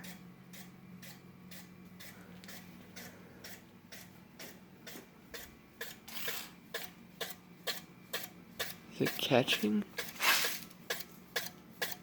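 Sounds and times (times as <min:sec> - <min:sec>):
ceiling fan motor hum: 0:00.0 - 0:12.0
ticking from fan: 0:00.0 - 0:12.0.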